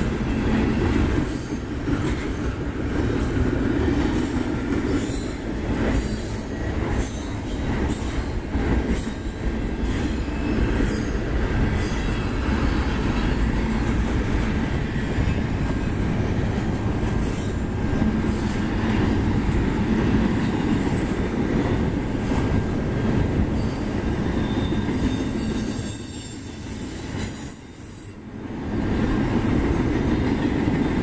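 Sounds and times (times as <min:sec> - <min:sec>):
train wheels rumbling on rails: 0:00.0 - 0:31.0
faint wheel squeal: 0:23.6 - 0:28.2.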